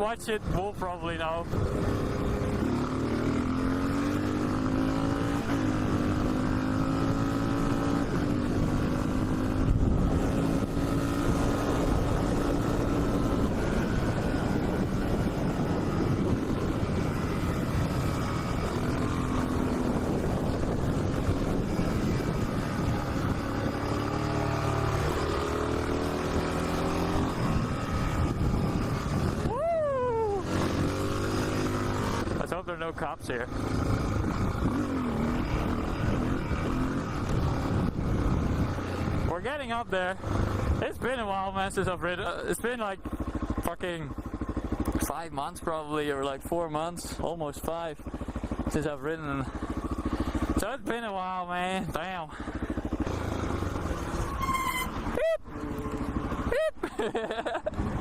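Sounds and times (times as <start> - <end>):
motorcycle engine cruising: 0.0 - 58.0
wind rush: 7.3 - 32.5, 33.8 - 39.4.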